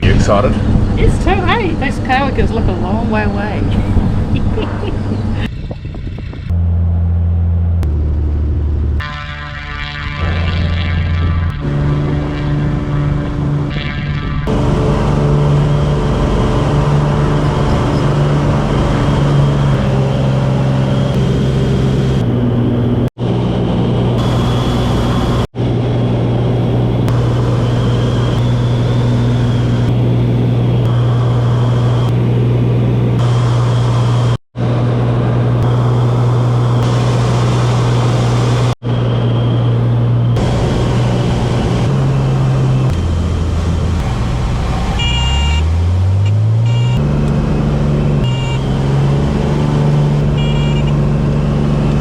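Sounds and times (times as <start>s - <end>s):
light aircraft engine droning: 0.0s - 48.7s.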